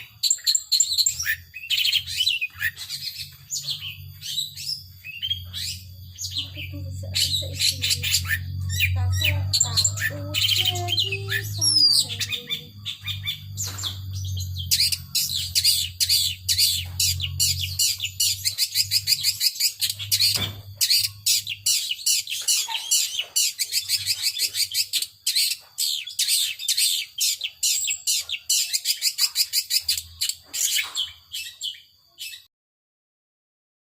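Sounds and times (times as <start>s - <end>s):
bird singing high chirps: 0.0s - 32.5s
low hum: 2.0s - 21.8s.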